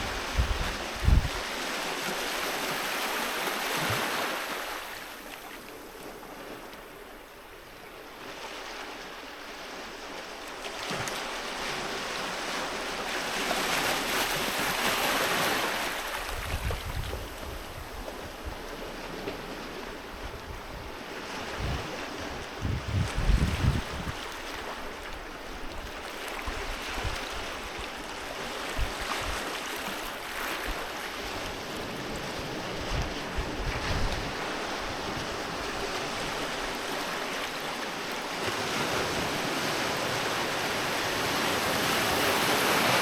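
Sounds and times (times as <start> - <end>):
wind buffeting microphone: 0.0 - 1.4, 16.2 - 24.3, 30.6 - 36.5
sea waves breaking on beach: 0.0 - 7.2, 8.1 - 43.0.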